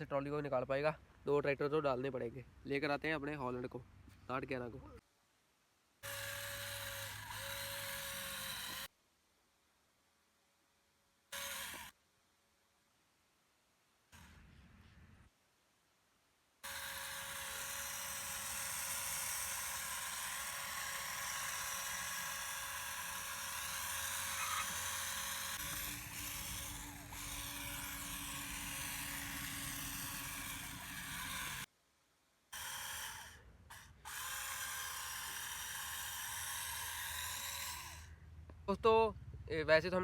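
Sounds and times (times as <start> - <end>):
small electric motor whirring: 6.0 - 8.9, 11.3 - 12.0, 16.6 - 31.7, 32.6 - 38.2.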